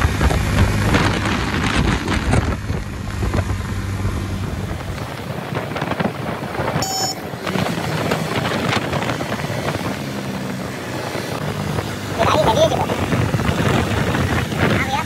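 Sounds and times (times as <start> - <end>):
vehicle engine humming: 0.0 - 15.0
wind buffeting microphone: 0.0 - 15.0
short electronic blip: 6.8 - 7.2.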